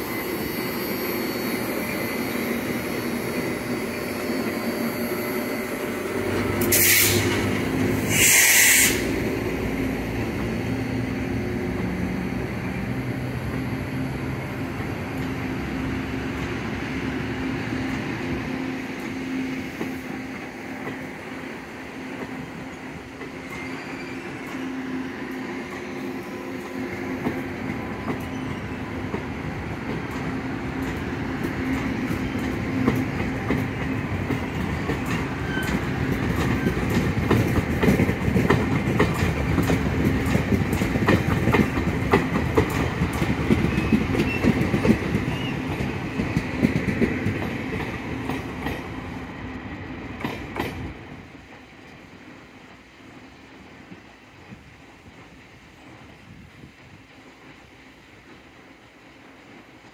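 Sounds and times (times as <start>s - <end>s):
wheels clicking over rail joints: 26.6s - 49.0s.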